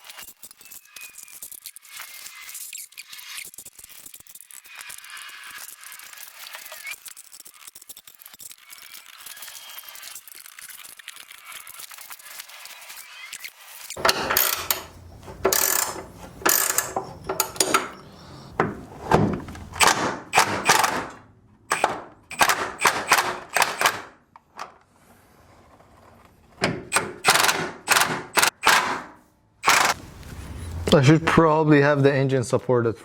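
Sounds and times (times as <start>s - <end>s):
hand tools clanking on metal: 14.0s - 18.8s.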